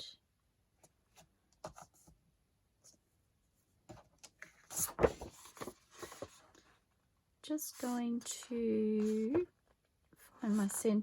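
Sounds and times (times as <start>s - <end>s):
paper rustling and shuffling: 3.9s - 6.8s, 7.6s - 11.0s.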